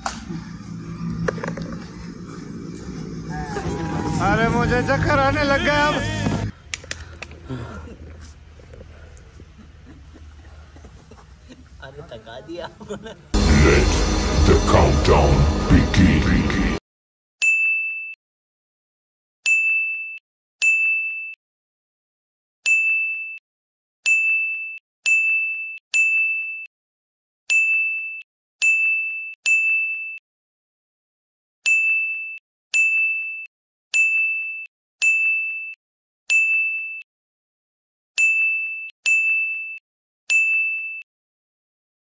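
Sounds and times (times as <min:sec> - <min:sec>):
electronic bell-like ding: 0:38.2 - 0:41.1.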